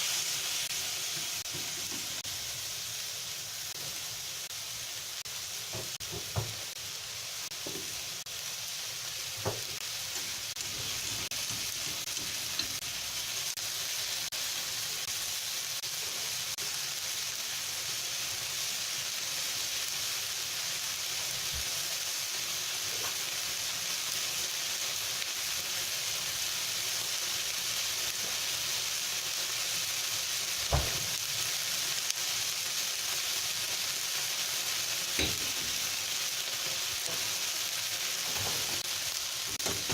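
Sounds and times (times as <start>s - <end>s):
meat sizzling in a frying pan: 0.0s - 39.9s
utensil knocking against pan: 5.7s - 6.6s, 9.4s - 9.8s, 35.2s - 35.8s.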